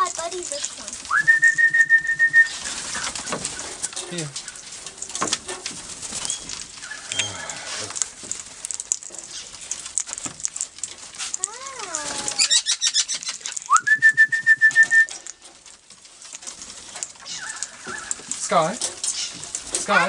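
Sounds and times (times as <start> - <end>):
parrots chirping: 0.0 - 10.4, 11.0 - 15.6, 16.2 - 20.0
whistled note: 1.1 - 2.6, 13.7 - 15.2
wavering bird call: 1.1 - 3.1, 6.8 - 7.8, 11.8 - 15.2.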